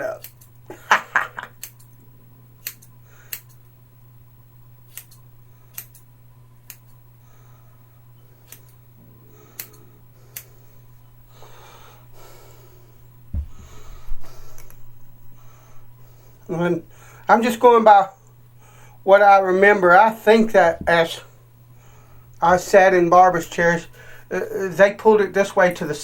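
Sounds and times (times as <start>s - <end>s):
scissors snipping hair: 0.1s - 0.6s, 1.5s - 2.0s, 2.6s - 3.6s, 4.9s - 6.1s, 8.4s - 8.8s, 9.6s - 10.5s.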